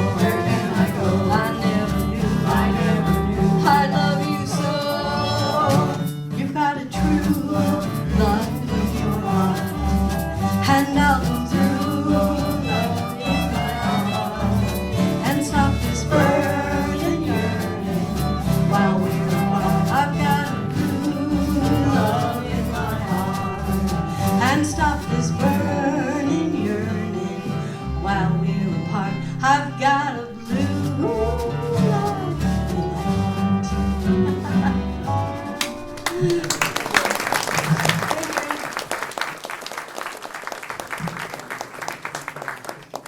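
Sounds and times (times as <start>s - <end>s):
acoustic folk ensemble playing: 0.0s - 42.5s.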